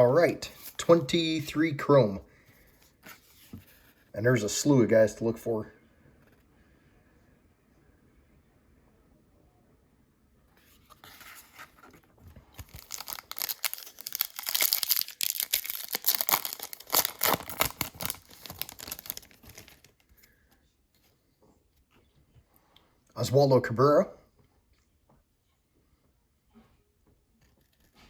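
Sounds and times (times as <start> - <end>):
foil wrapper tearing and crinkling: 12.6 - 20.0.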